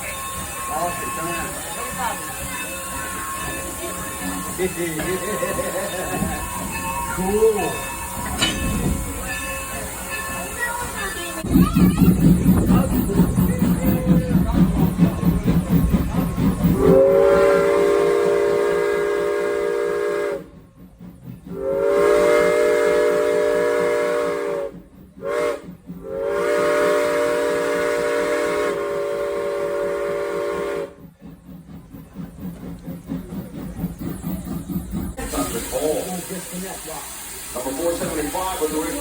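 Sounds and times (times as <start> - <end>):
steam locomotive whistle: 0.0 - 11.4, 16.6 - 20.6, 21.5 - 31.0
steam hiss: 0.0 - 39.0.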